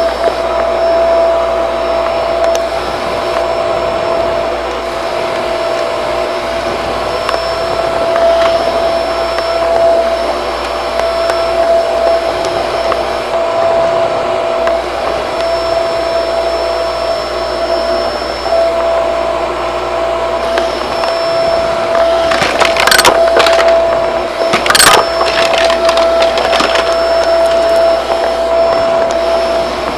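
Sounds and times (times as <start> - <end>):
hard objects rattling in vacuum: 0.0 - 16.2, 19.6 - 29.9
vacuum cleaner whining: 0.0 - 29.9.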